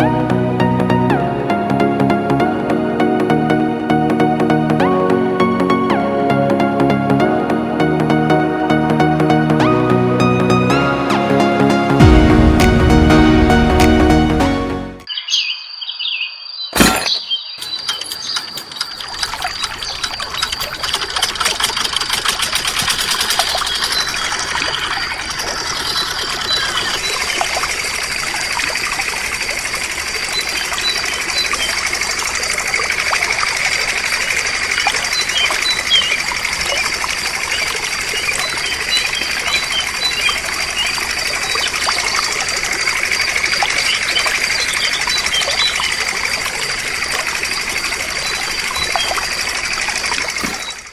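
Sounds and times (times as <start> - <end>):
water pouring from pump: 16.8 - 50.9
birds chirping: 34.9 - 50.9.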